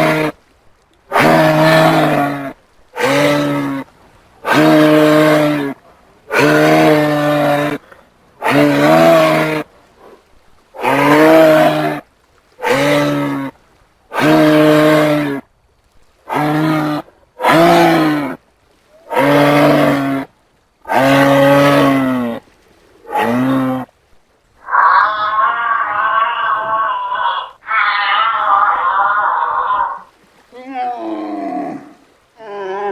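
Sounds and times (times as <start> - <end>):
low moo-like animal calls: 24.6 - 30.1, 30.9 - 32.9.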